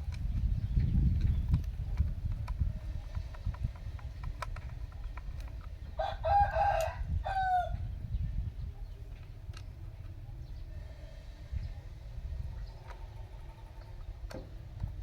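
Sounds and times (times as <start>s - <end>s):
scattered clicks: 1.1s - 5.8s
rooster crowing: 6.0s - 7.8s.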